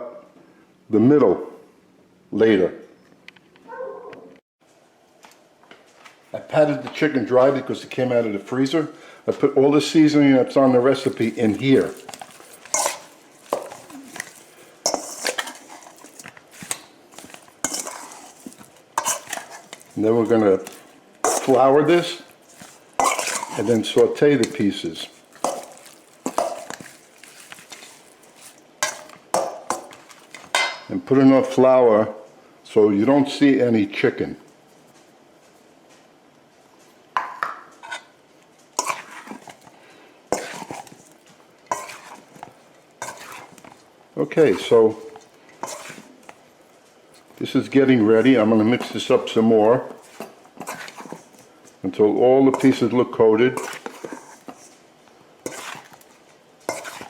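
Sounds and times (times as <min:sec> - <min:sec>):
metal utensil scraping a bowl: 0:11.0 - 0:30.9, 0:38.8 - 0:39.7, 0:40.3 - 0:43.8, 0:44.4 - 0:46.4, 0:49.9 - 0:51.5, 0:52.5 - 0:52.9, 0:53.5 - 0:54.8, 0:55.4 - 0:57.0.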